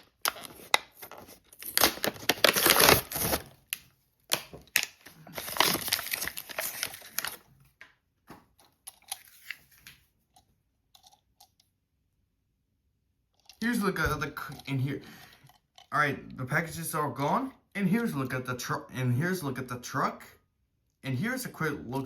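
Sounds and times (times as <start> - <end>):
packaging ripping and rustling: 0.0 - 7.5, 8.9 - 10.0.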